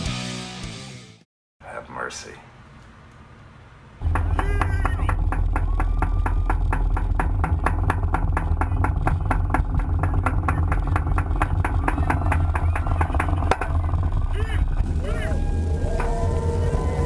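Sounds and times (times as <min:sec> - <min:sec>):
engine idling: 0:04.0 - 0:17.0.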